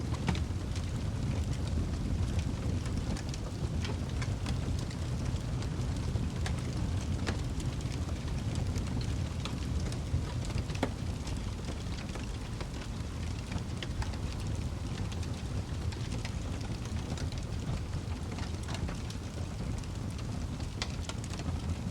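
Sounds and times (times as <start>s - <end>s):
low rumble of burning: 0.0s - 21.9s
wood fire crackling: 0.0s - 21.9s.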